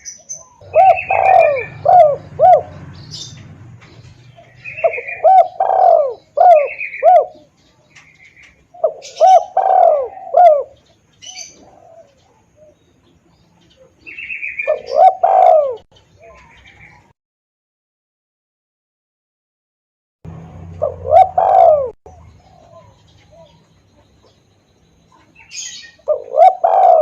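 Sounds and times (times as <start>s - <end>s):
dove cooing: 0.0s - 17.0s, 20.6s - 24.4s, 25.1s - 27.0s.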